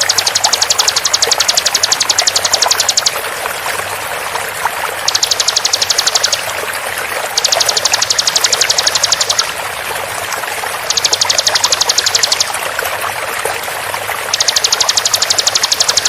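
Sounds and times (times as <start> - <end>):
bird rapid trill: 0.0 - 3.2, 5.0 - 6.5, 7.4 - 9.6, 10.8 - 12.5, 14.3 - 16.0
running water rushing: 0.0 - 16.0.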